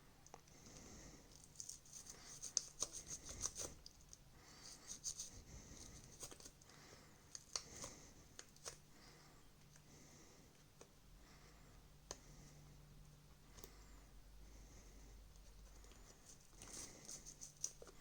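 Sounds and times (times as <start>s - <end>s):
faint scratching and scrubbing: 0.8s - 6.6s, 13.8s - 18.0s.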